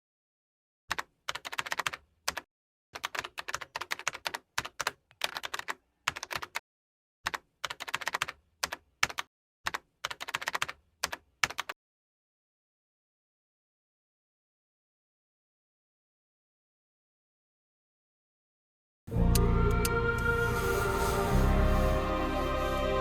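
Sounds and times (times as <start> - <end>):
keyboard typing clicks: 0.9 - 2.4, 3.0 - 6.6, 7.3 - 11.7.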